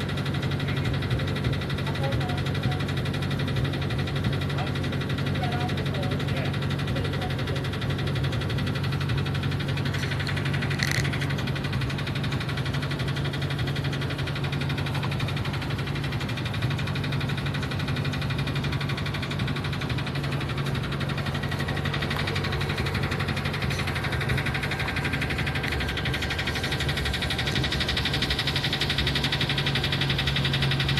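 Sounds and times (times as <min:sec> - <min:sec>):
engine idling with rod knock: 0:00.0 - 0:30.9.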